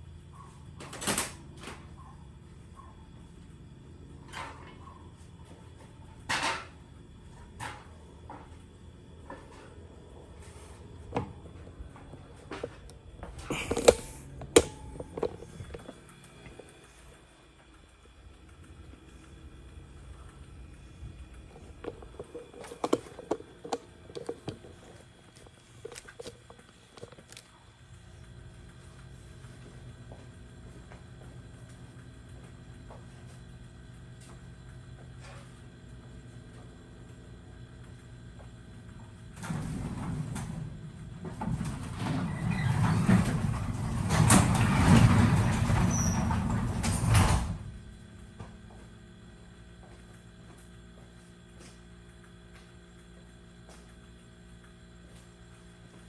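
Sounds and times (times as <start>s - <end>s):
faint steady hum: 0.0s - 56.0s
garage door rolling and rattling: 38.8s - 48.8s.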